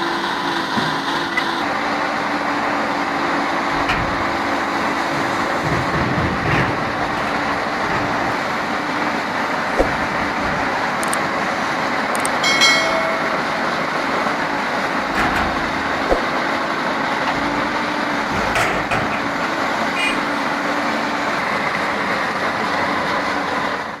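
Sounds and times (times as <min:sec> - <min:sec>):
heavy diesel machinery running: 0:00.0 - 0:24.0
metal clanks: 0:03.6 - 0:20.6.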